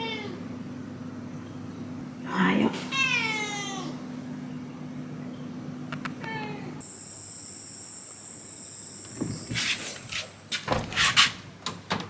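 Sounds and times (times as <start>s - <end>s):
insect trill: 6.8s - 10.0s
scuffing and rustling: 9.2s - 11.4s.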